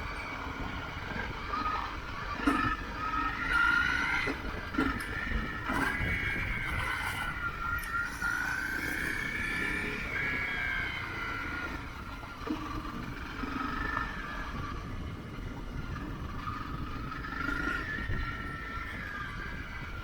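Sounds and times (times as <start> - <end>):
motorcycle engine revving: 0.0 - 18.0
road rumble: 0.0 - 20.0
wind rushing: 0.0 - 20.0.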